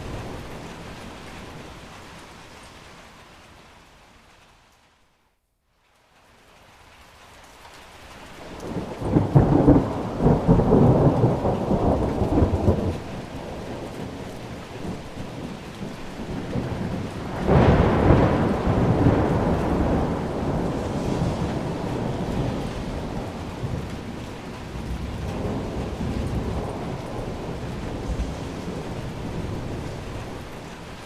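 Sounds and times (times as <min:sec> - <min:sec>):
steady rain: 0:00.0 - 0:31.0
thunder rolling: 0:08.6 - 0:31.0.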